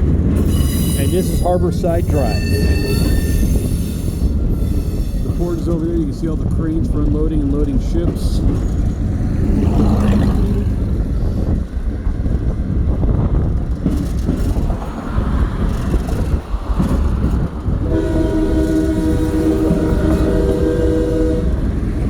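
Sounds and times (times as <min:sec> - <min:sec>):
train rumbling on track: 0:00.0 - 0:22.0
locomotive air horn: 0:17.8 - 0:21.9.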